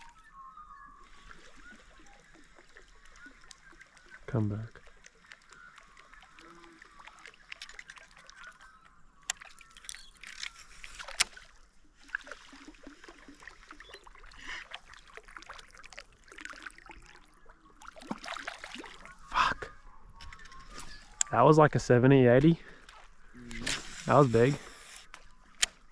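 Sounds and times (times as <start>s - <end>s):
water splashes and drips: 1.0s - 19.4s.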